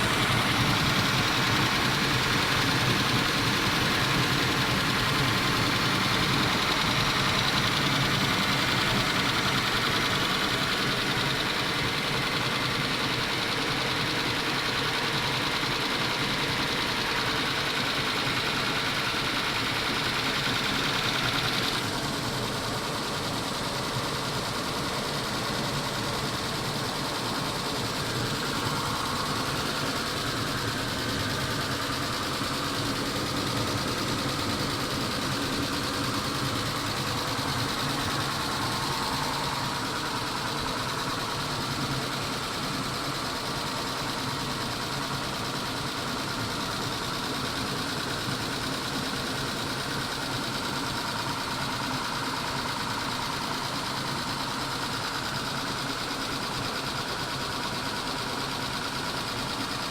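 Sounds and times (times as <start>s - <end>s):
car engine idling: 0.0s - 59.9s
fast light valve ticking: 27.9s - 44.7s.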